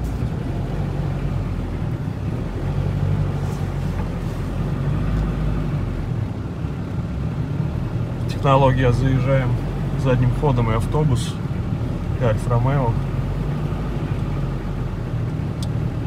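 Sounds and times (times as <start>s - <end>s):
car engine running at low revs: 0.0s - 16.0s.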